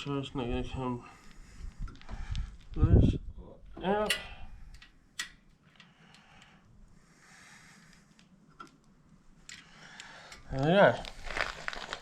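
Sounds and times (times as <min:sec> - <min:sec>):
metal parts clicking: 0:04.0 - 0:06.5
soft rustle: 0:09.0 - 0:12.0.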